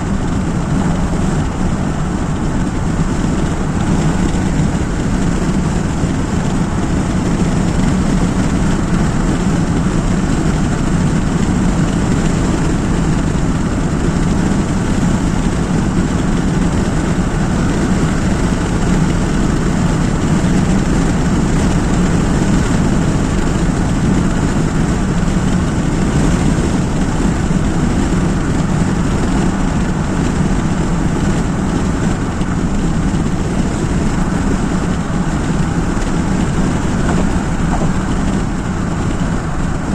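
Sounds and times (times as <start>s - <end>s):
car road and engine noise: 0.0s - 39.9s.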